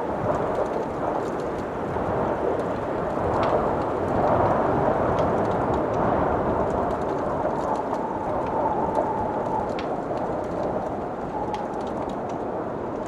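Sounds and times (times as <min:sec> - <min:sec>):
wind blowing: 0:00.0 - 0:13.0
wood fire crackling: 0:00.0 - 0:13.0
faint wind whistle: 0:07.6 - 0:12.9.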